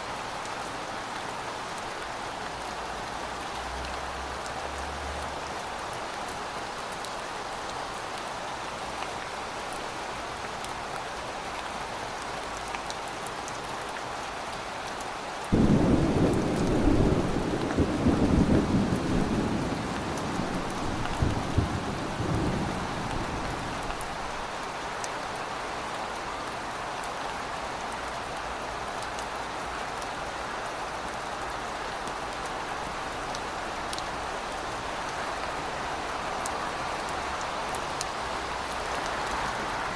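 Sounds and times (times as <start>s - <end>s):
heavy rain falling: 0.0s - 39.9s
thunder rumbling: 15.5s - 23.8s.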